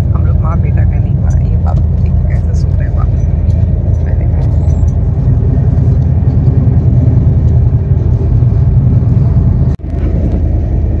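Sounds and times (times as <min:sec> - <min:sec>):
train rumble from inside a coach: 0:00.0 - 0:11.0.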